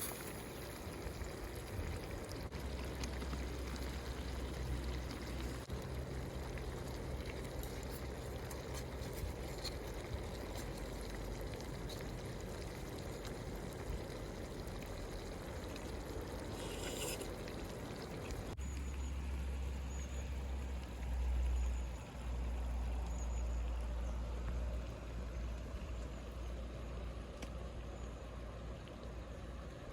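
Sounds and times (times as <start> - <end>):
water pouring: 0.0 - 19.0.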